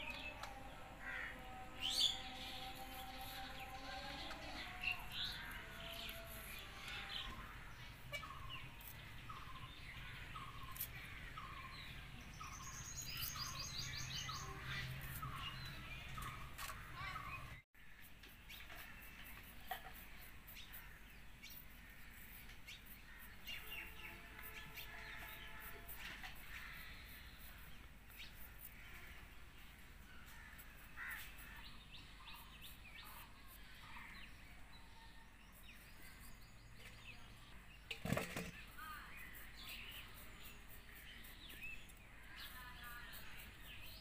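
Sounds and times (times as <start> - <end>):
birds chirping: 0.0 - 17.6.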